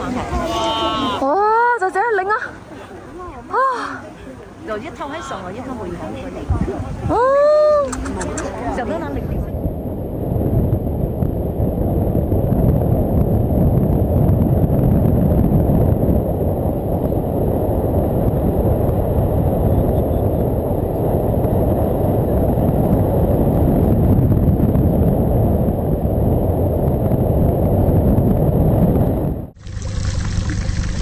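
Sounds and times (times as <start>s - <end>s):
wind buffeting microphone: 1.7s - 31.0s.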